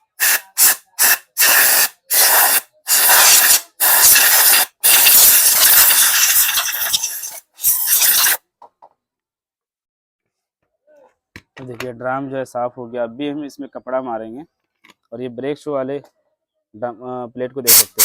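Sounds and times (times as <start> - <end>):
compressed air blow gun hissing: 0.2 - 8.4.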